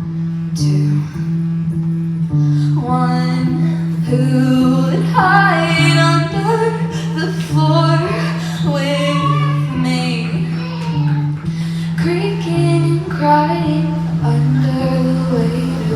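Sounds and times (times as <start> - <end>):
bass sustained low notes: 0.0 - 15.9
woman singing: 0.6 - 1.3, 2.6 - 15.9.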